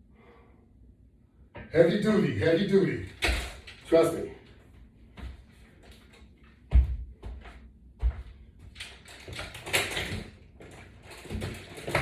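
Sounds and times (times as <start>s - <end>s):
equipment clattering and rustling: 5.2s - 12.0s.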